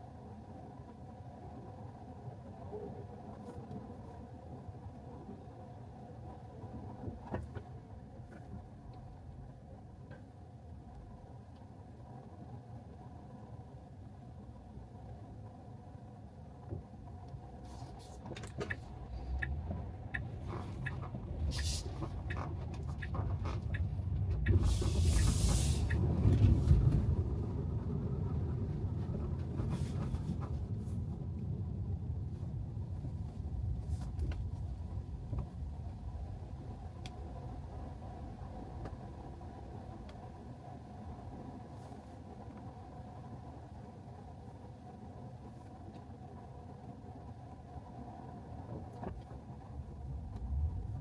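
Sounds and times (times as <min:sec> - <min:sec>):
tyre and road noise: 0:16.6 - 0:43.6, 0:47.8 - 0:51.0.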